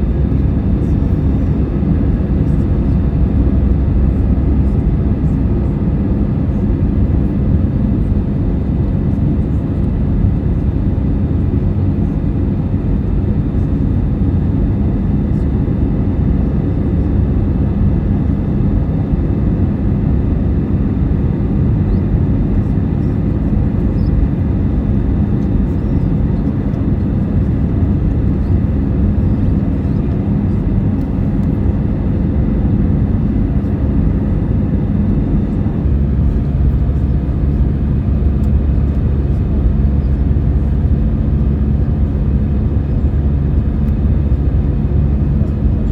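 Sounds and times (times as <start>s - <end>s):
jet engines and airflow rumble: 0.0s - 45.9s.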